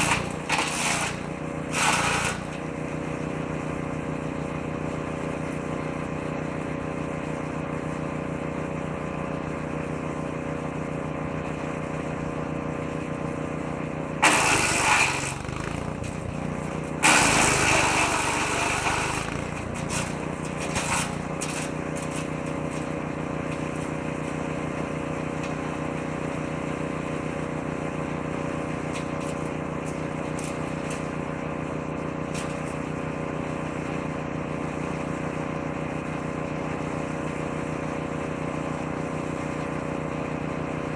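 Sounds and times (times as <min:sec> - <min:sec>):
shredder chewing branches: 0:00.0 - 0:03.4, 0:14.1 - 0:27.1, 0:28.4 - 0:34.4
woodchipper engine running: 0:00.0 - 0:40.9.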